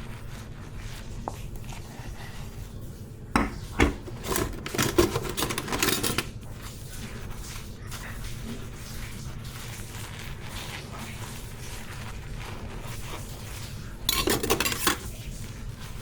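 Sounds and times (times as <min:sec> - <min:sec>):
dishes and cutlery clattering: 0:03.4 - 0:06.4, 0:14.1 - 0:15.2.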